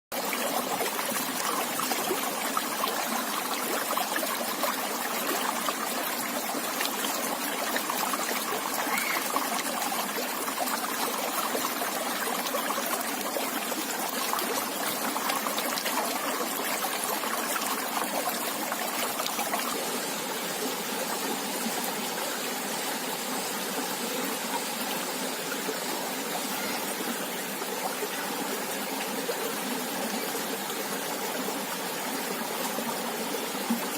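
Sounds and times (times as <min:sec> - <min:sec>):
river water flowing over rocks: 0:00.2 - 0:33.9.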